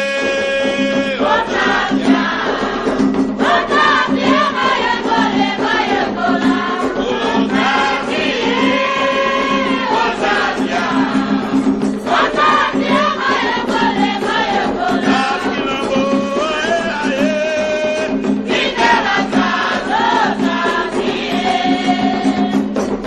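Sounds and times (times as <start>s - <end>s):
group of voices chanting: 0.2s - 16.0s.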